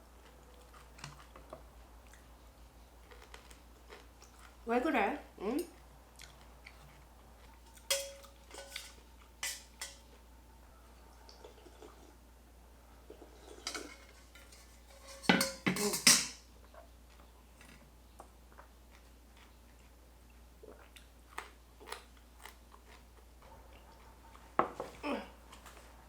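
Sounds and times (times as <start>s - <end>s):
dishes and utensils clattering: 7.7s - 10.1s, 13.4s - 16.4s.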